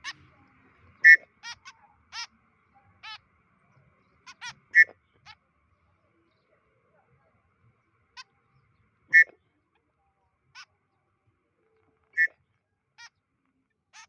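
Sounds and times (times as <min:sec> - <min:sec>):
bird short clipped calls: 0:01.0 - 0:02.3, 0:04.3 - 0:05.4, 0:09.1 - 0:09.4, 0:12.1 - 0:12.4.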